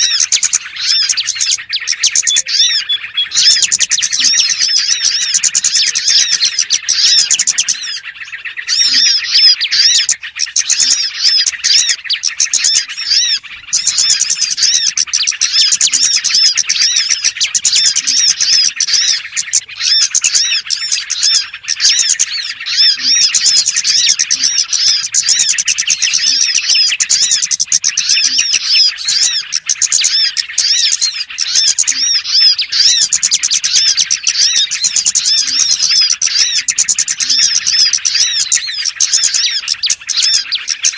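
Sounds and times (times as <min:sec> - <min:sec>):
small songbirds chirping: 0:00.0 - 0:40.9.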